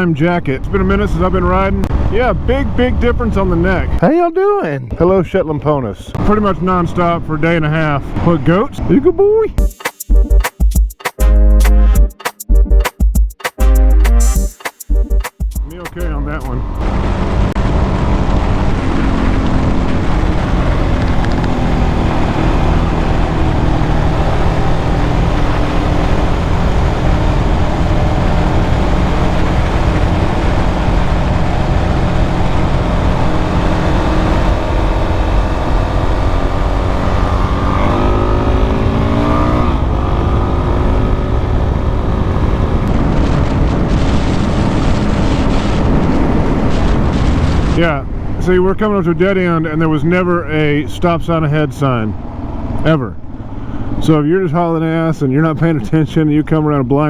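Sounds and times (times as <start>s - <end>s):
dirt bike engine running: 13.6s - 39.3s.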